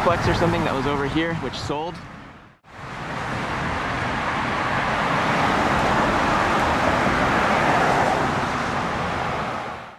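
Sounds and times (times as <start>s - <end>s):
road traffic noise: 0.0s - 9.9s.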